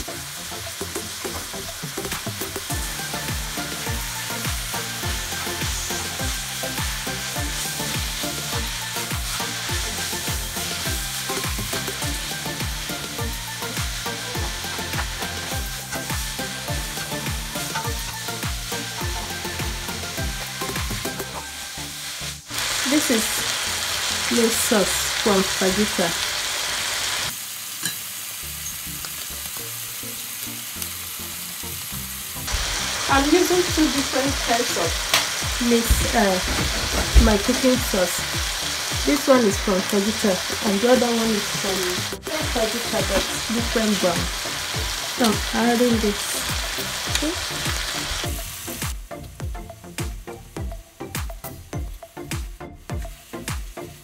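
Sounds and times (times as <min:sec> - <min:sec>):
vegetables sizzling in a frying pan: 0:00.0 - 0:54.0
low thumping beat: 0:01.3 - 0:21.4, 0:32.5 - 0:39.7, 0:41.9 - 0:53.9.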